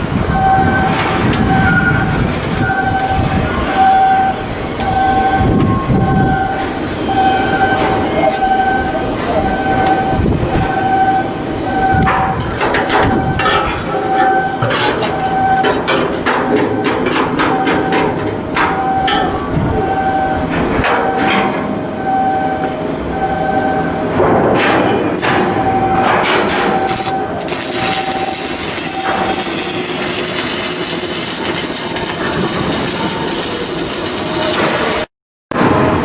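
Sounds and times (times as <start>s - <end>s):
electronic warning beeper: 0.0s - 35.1s
machinery rumble: 0.0s - 36.0s
metal knocks and clanks: 12.0s - 19.4s, 24.2s - 27.1s.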